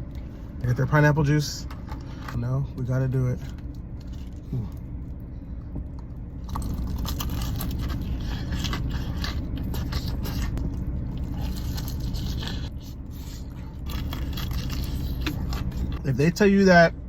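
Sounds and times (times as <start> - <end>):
steady low hum: 0.0 - 17.0
crunching fried chicken: 5.9 - 16.0.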